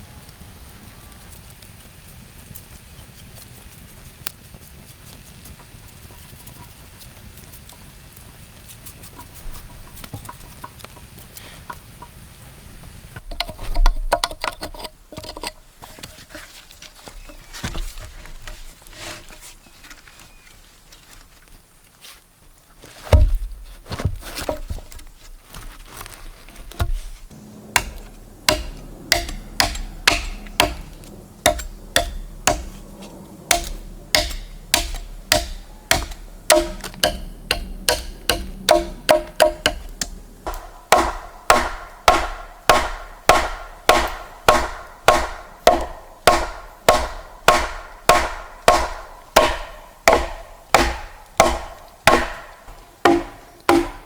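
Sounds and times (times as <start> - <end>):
blade chopping wood: 23.1 - 23.6, 26.7 - 54.0.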